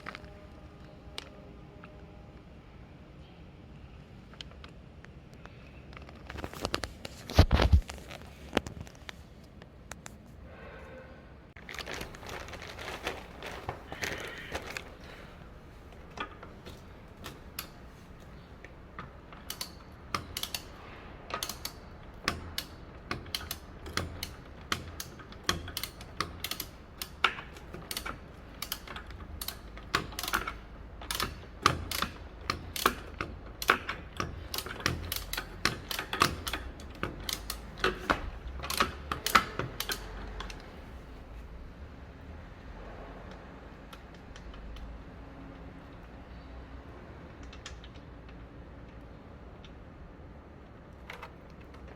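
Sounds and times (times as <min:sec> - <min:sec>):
hand tools clicking and tapping: 0:15.9 - 0:40.8.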